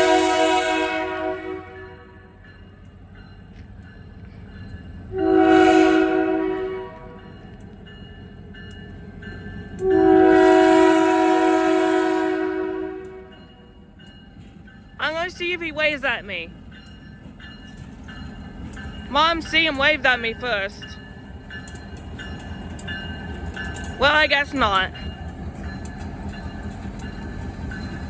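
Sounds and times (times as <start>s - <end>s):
locomotive air horn blasts: 0.0s - 2.3s, 5.1s - 7.2s, 9.8s - 13.3s
low train rumble: 0.0s - 28.0s.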